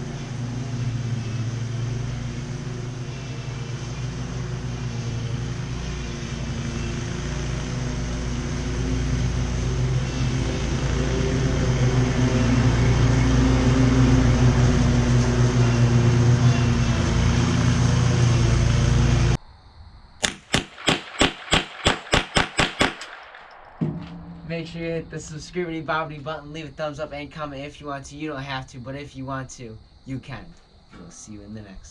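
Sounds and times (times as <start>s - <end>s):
riding lawn mower engine running: 0.0s - 19.4s
rapid sharp clicks: 20.2s - 23.8s.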